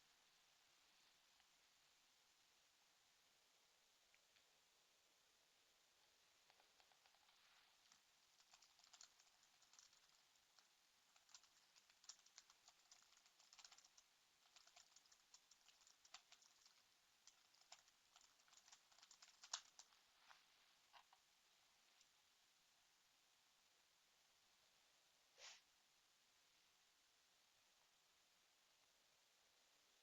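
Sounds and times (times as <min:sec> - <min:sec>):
computer keyboard typing: 0:06.4 - 0:20.0.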